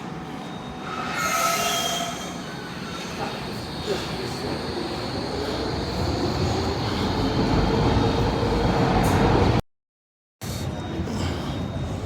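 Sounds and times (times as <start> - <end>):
train rumbling and whining: 0.0 - 9.6.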